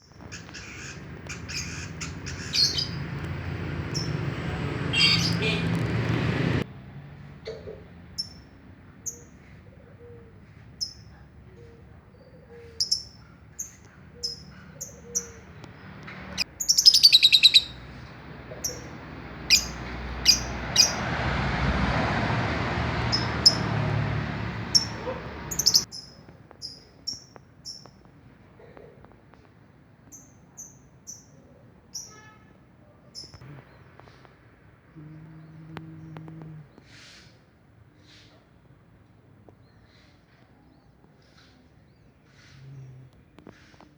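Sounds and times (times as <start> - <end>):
songbird chirping: 0.0 - 5.9, 10.2 - 21.1, 24.6 - 28.0, 33.2 - 36.9.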